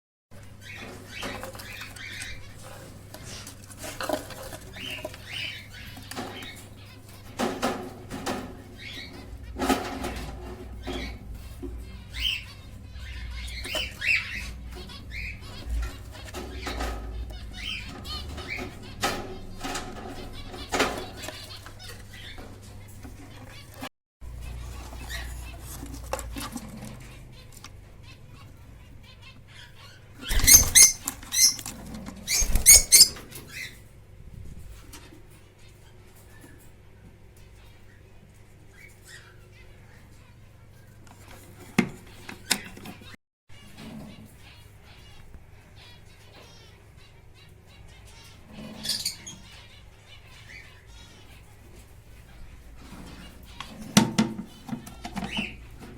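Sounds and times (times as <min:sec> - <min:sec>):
birds chirping: 0:00.3 - 0:55.9
lovebirds shrill chirps: 0:00.5 - 0:07.2, 0:11.8 - 0:22.5, 0:29.0 - 0:33.8, 0:47.9 - 0:51.5, 0:54.5 - 0:55.7
wings flapping and rustling: 0:00.6 - 0:11.8, 0:30.2 - 0:35.4
wings fluttering: 0:30.2 - 0:35.0.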